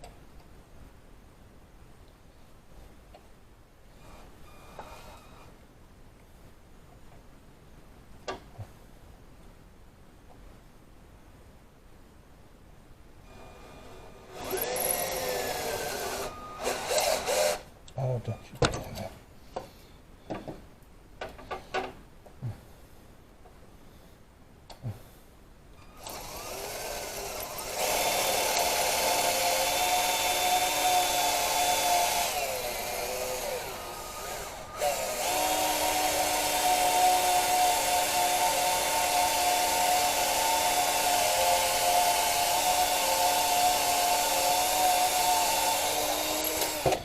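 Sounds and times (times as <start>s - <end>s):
electric drill running: 13.5s - 17.7s, 26.0s - 47.0s.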